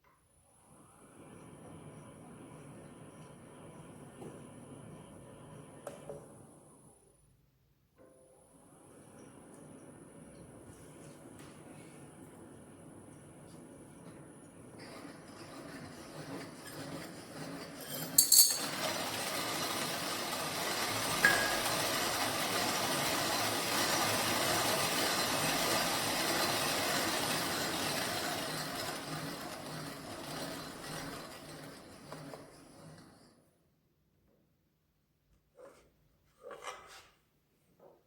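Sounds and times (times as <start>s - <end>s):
coffee mill grinding: 15.4s - 29.7s
sharp metallic clinks: 18.0s - 18.6s.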